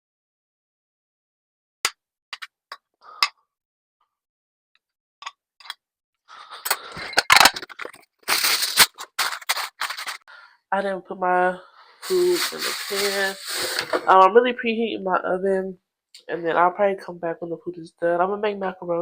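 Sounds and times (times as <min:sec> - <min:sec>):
kitchen clicks and clinks: 0:06.6 - 0:08.0
cookware clattering and knocking: 0:06.7 - 0:08.0.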